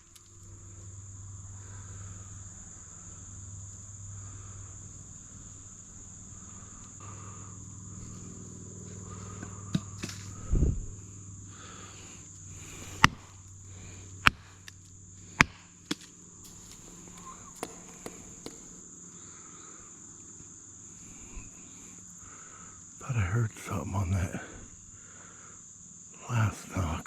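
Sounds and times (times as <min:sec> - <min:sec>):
insects buzzing: 0:00.0 - 0:27.0
stick knocking on tree trunk: 0:13.0 - 0:13.2, 0:15.4 - 0:18.8.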